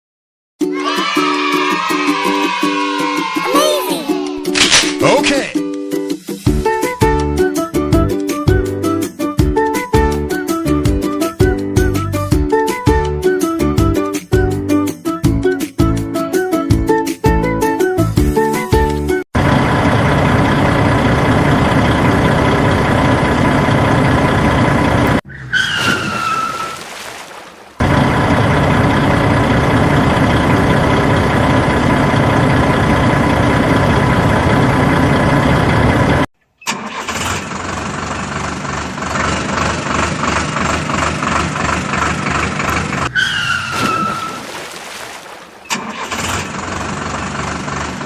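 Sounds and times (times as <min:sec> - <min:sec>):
engine running: 0:19.4 - 0:25.2, 0:27.8 - 0:43.1, 0:45.4 - 0:48.0
rough pulsing engine: 0:19.4 - 0:25.2, 0:27.8 - 0:36.3, 0:37.0 - 0:43.1, 0:45.7 - 0:48.0.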